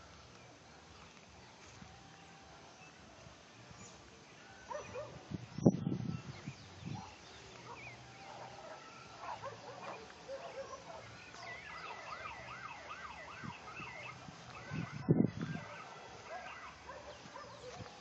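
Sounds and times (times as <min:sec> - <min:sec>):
small birds chirping and singing: 0:00.0 - 0:18.0
bird whistling looping notes: 0:09.8 - 0:16.8.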